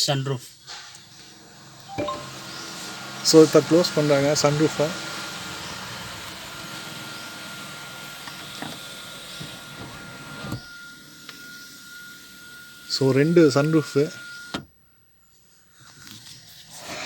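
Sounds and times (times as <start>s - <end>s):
sunroof motor hum: 1.1s - 14.6s.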